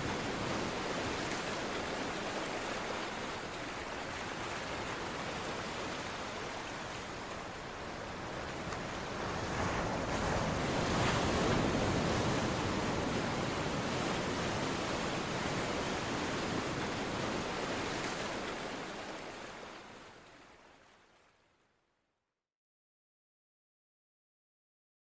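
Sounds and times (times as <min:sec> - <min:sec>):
ocean waves breaking on beach: 0:00.0 - 0:21.3.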